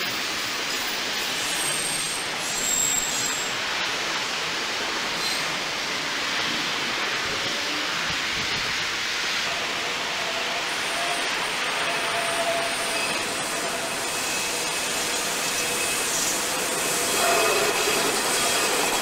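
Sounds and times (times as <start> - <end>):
train coaches rolling on rails: 0.0 - 19.0
high-pitched wheel squeal: 1.4 - 3.5, 10.4 - 19.0.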